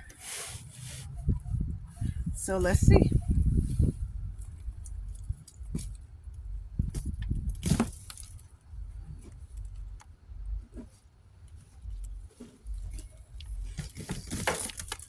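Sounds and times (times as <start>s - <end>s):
low rumble: 0.6s - 14.0s
soil clicks scrapes and rustles: 3.6s - 10.1s, 10.7s - 15.0s.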